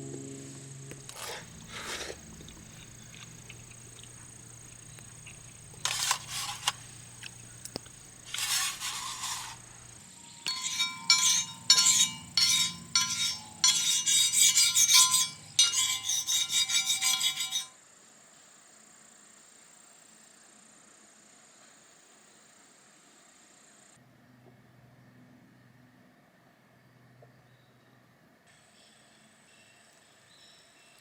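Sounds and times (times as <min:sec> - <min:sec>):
hard objects clinking: 0:01.1 - 0:17.7.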